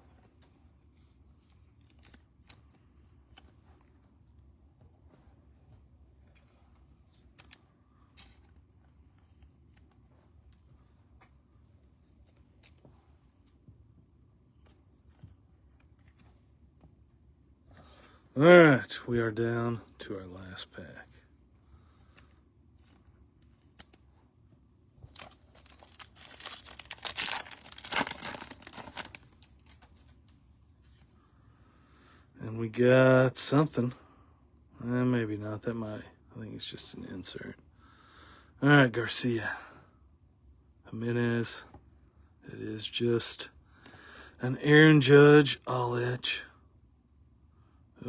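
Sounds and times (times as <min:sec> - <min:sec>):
trading cards clicking and rustling: 0:25.0 - 0:30.4
foil wrapper tearing and crinkling: 0:25.1 - 0:30.0.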